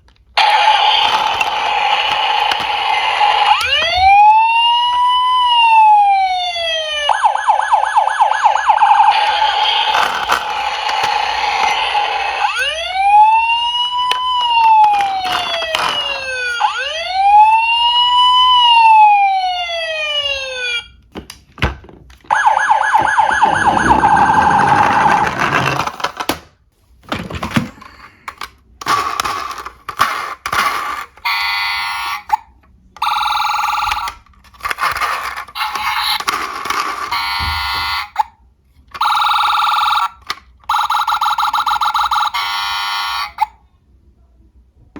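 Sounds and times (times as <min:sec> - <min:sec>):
electronic police siren: 0:00.4 - 0:21.0, 0:22.3 - 0:26.0, 0:33.0 - 0:34.2, 0:34.8 - 0:36.4, 0:37.0 - 0:38.3, 0:39.0 - 0:43.6
electronic alarm bursts: 0:22.3 - 0:25.8.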